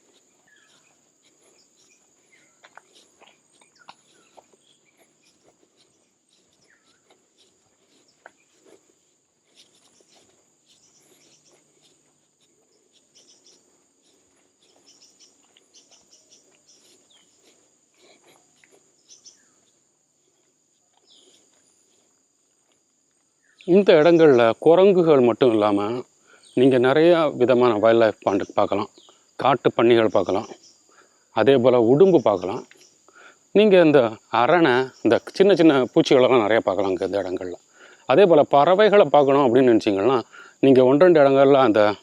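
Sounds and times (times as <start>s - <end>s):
high-pitched insect drone: 0.0s - 22.7s.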